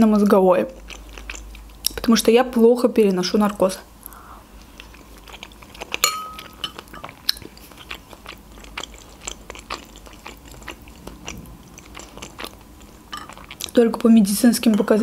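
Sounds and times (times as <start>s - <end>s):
person chewing food: 0.7s - 2.0s, 4.0s - 13.8s.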